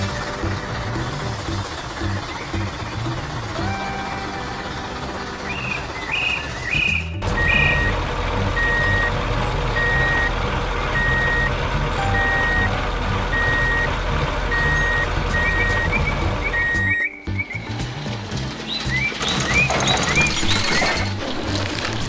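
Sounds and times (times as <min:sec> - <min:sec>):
low engine rumble: 0:00.0 - 0:22.0
reversing alarm beeping: 0:05.4 - 0:17.2.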